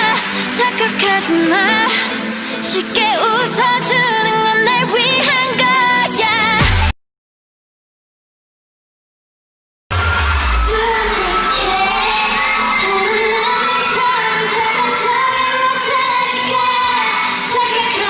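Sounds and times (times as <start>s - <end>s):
woman singing over pop backing track: 0.0s - 6.8s, 10.6s - 18.0s
deep bass hit: 9.9s - 13.0s.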